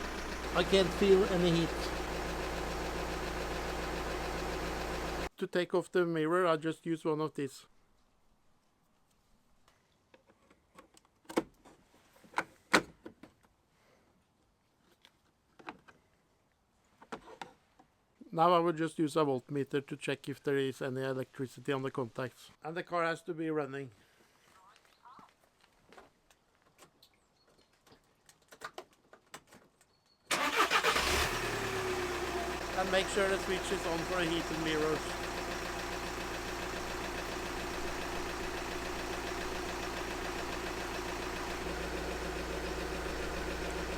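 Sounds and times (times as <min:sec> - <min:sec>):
van engine starting and running: 0:00.0 - 0:05.3, 0:30.3 - 0:43.9.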